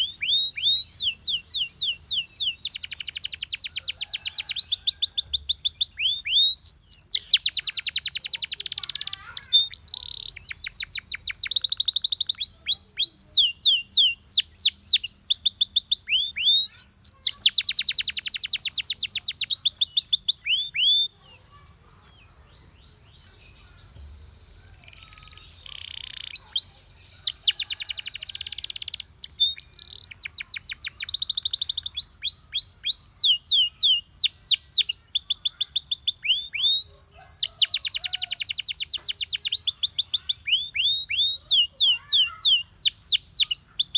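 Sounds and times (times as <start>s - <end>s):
canary singing: 0.0s - 43.9s.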